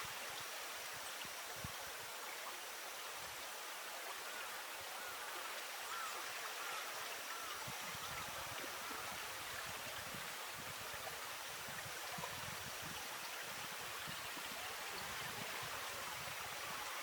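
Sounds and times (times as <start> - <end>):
flowing water hiss: 0.0 - 17.0.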